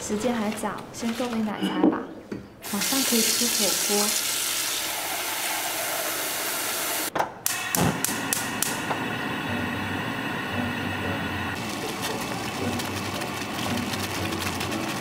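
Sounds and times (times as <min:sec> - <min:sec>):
tap water running into saucepan: 0:02.6 - 0:07.1
gas burner hissing: 0:02.6 - 0:12.2
gas igniter clicking: 0:07.4 - 0:08.9.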